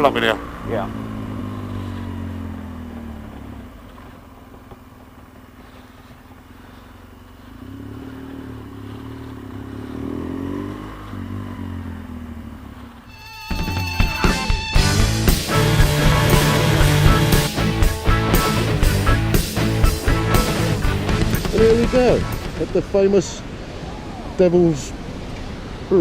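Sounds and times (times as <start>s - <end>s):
motorcycle engine: 0.0s - 23.9s
rock music: 13.1s - 22.8s.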